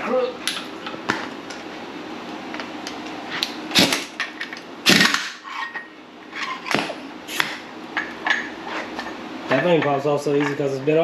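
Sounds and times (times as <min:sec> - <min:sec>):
metal tools clanking and knocking: 0:05.4 - 0:06.8, 0:08.0 - 0:10.8.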